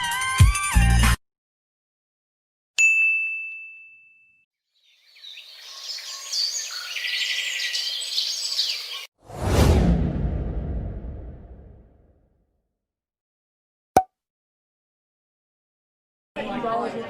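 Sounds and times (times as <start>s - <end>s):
bell-like ding: 2.8s - 4.4s
birds chirping: 4.7s - 9.1s.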